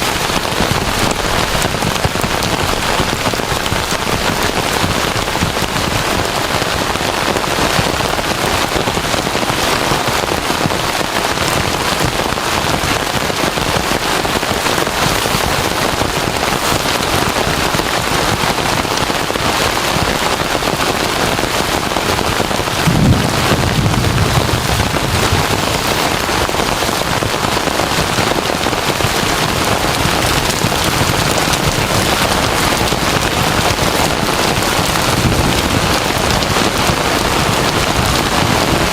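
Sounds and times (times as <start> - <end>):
heavy rain pouring: 0.0 - 38.9
thunder rumble: 22.0 - 38.9.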